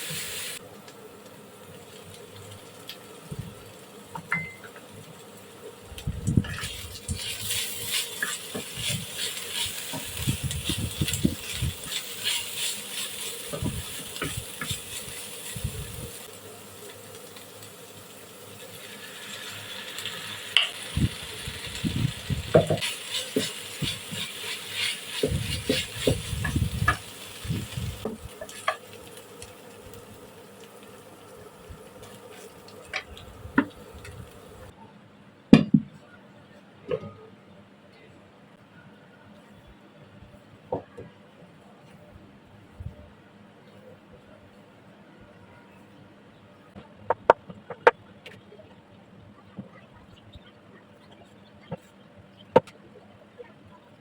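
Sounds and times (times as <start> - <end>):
food sizzling in a frying pan: 0.0 - 34.7
spatula scraping a pan: 6.4 - 16.2, 22.5 - 27.2.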